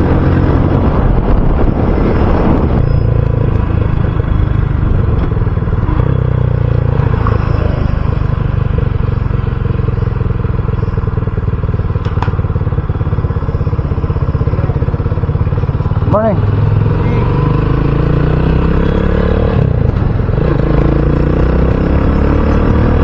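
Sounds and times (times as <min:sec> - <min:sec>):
wind on microphone: 0:00.0 - 0:09.8
motorcycle engine idling: 0:02.8 - 0:18.0.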